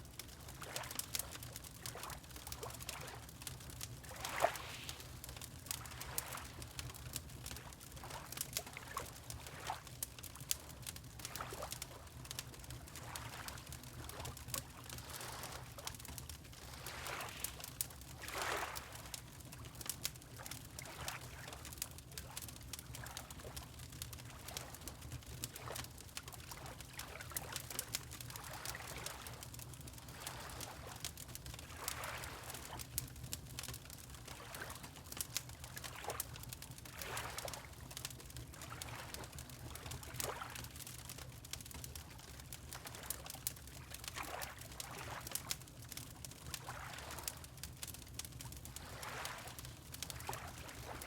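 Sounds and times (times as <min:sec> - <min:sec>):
fire crackling and popping: 0:00.0 - 0:04.2, 0:04.9 - 0:16.8, 0:19.1 - 0:31.9, 0:32.6 - 0:48.8
water lapping: 0:04.2 - 0:05.0, 0:16.6 - 0:17.6, 0:18.2 - 0:19.0, 0:31.7 - 0:32.7, 0:36.9 - 0:37.7, 0:46.7 - 0:47.3, 0:48.8 - 0:49.6.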